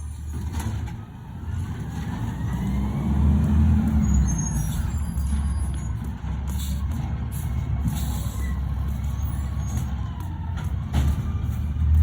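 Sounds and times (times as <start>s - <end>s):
garbage truck engine revving: 0.3s - 7.0s.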